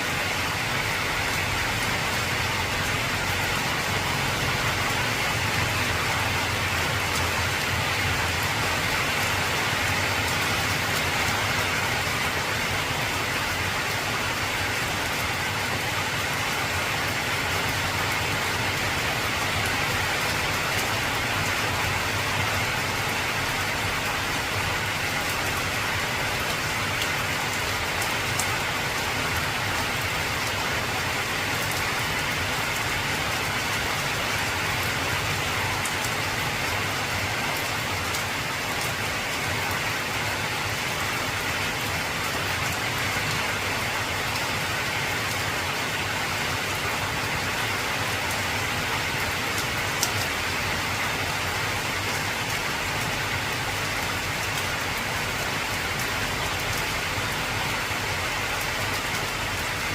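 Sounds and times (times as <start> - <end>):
heavy rain on a tin roof: 0.0 - 59.9
rain drop ticks: 49.5 - 50.4.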